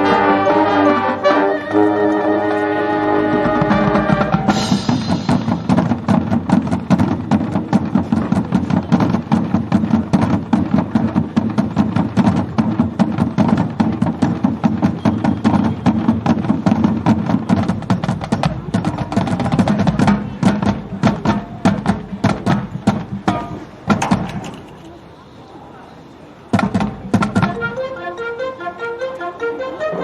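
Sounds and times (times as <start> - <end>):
marching band playing: 0.0 - 24.9, 26.5 - 30.0
drum and wood-block strikes: 4.2 - 24.8, 26.6 - 27.7.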